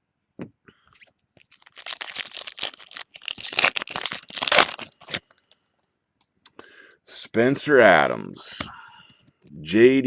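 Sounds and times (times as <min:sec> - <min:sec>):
wrapper crinkling and tearing: 0:01.4 - 0:05.6.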